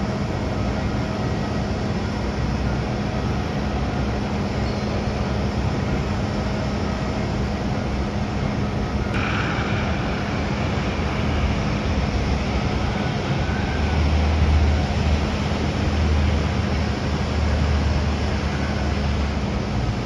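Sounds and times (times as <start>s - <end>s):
jet engines running: 0.0s - 20.0s
deep rumble: 9.1s - 18.2s.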